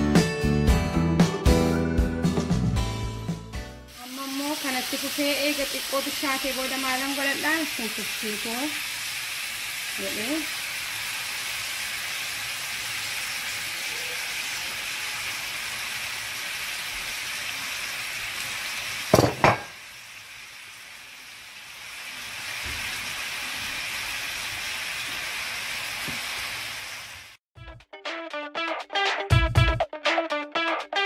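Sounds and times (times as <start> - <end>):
meat sizzling in a pan: 3.9 - 27.4.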